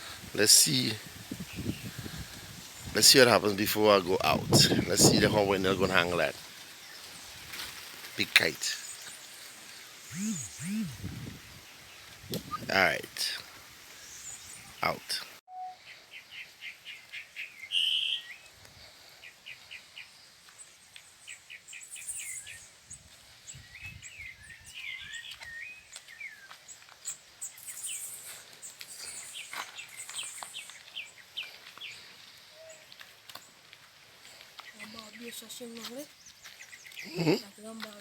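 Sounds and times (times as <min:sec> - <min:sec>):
birds chirping: 0:00.4 - 0:02.0, 0:08.1 - 0:18.5, 0:27.4 - 0:33.6, 0:34.2 - 0:38.0.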